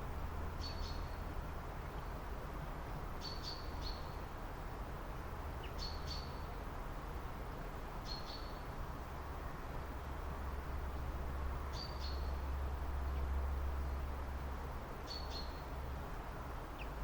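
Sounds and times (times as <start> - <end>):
low background rumble: 0.0 - 3.2, 8.6 - 17.0
bird chirping: 0.6 - 1.2, 3.2 - 4.1, 5.6 - 6.5, 8.0 - 8.6, 11.7 - 12.4, 15.0 - 15.7.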